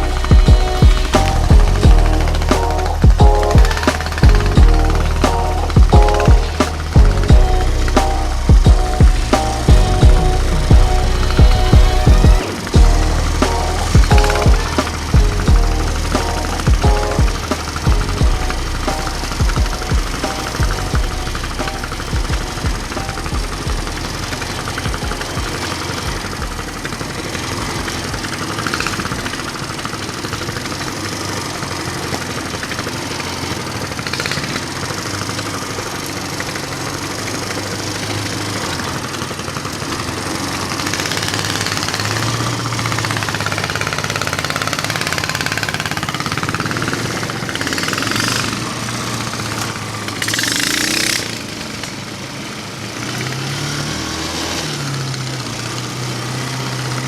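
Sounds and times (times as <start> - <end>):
loud rushing burst: 0.0 - 30.2
small engine revving: 0.0 - 57.0.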